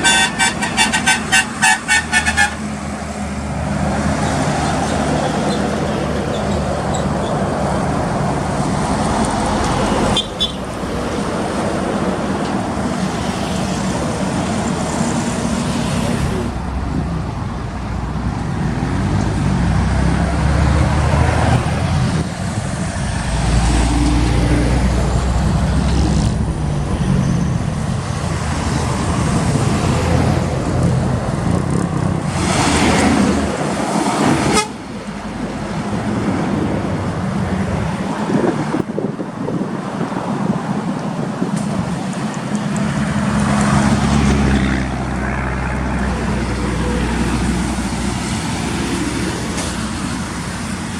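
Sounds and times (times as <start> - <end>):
vehicle horn: 0.0 - 2.7, 34.4 - 34.8
traffic noise: 0.0 - 50.9
truck diesel engines running: 0.0 - 50.9.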